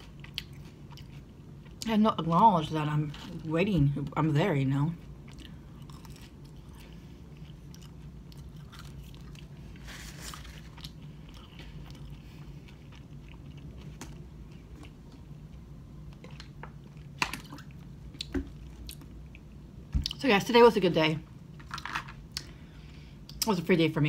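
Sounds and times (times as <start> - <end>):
chewing french fry: 0.0 - 2.3, 4.9 - 20.2.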